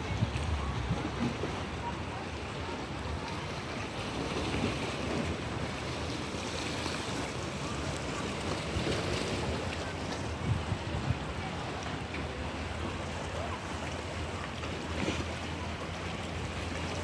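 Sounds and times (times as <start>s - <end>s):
wind buffeting microphone: 0.0s - 13.0s
sea waves washing: 0.0s - 17.0s.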